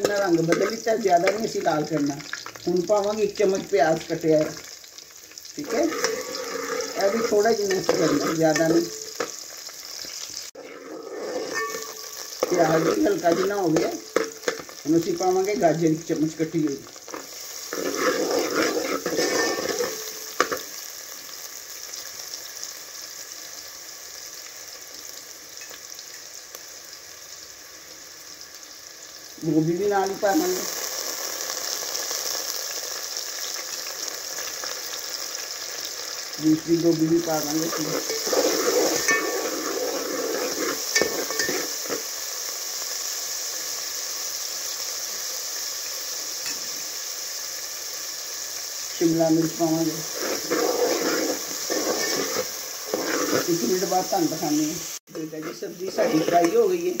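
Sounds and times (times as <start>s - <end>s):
vegetables sizzling in a pot: 0.0s - 57.0s
steel ladle scraping a pot: 5.6s - 9.0s, 10.6s - 14.7s, 17.1s - 20.7s, 37.6s - 42.1s, 50.0s - 53.8s, 55.1s - 57.0s.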